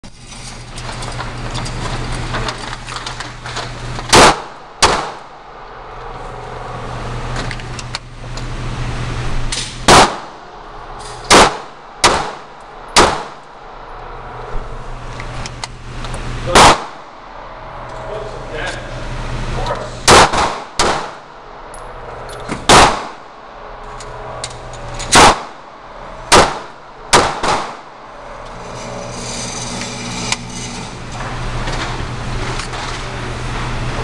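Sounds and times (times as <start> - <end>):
steady low hum: 0.0 - 34.0
gunshots: 4.1 - 5.3, 9.8 - 10.4, 11.3 - 13.4, 16.5 - 17.1, 20.0 - 21.3, 22.6 - 23.3, 25.1 - 25.6, 26.3 - 27.9.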